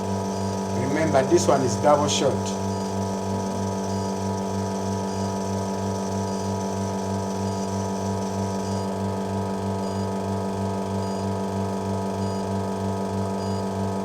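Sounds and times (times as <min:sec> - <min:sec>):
espresso machine pump humming: 0:00.0 - 0:14.0.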